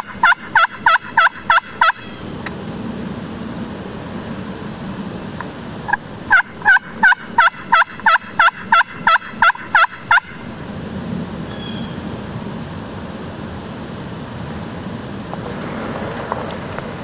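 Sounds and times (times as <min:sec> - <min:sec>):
turkey yelping: 0:00.0 - 0:02.2, 0:05.9 - 0:10.5.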